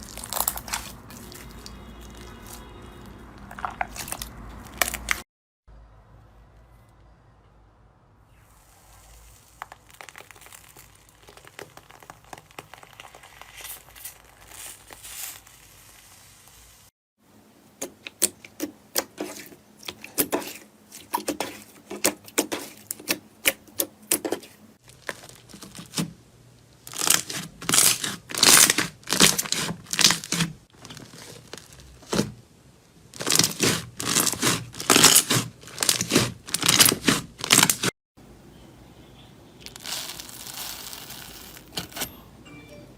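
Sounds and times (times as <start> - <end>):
slime crackling and popping: 0.0 - 2.7, 3.5 - 5.2, 8.6 - 16.9, 26.8 - 32.3, 33.2 - 37.9, 39.6 - 42.1.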